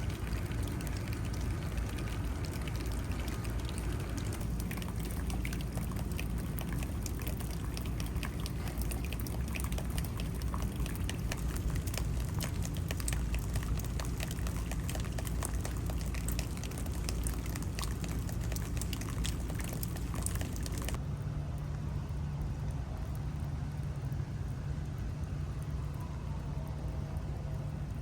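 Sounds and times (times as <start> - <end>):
water drops dripping: 0.0 - 21.0
low steady rumble: 0.0 - 28.0
rain: 0.0 - 28.0.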